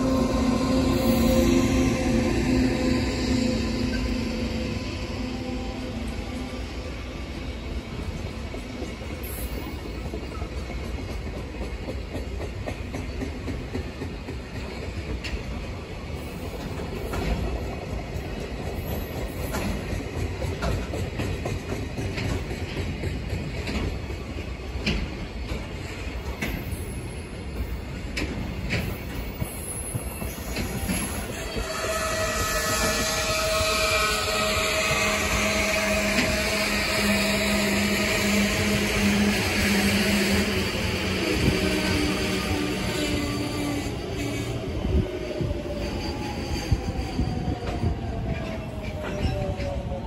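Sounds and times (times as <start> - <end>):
train wheels clacking over rail joints: 8.1 - 44.6.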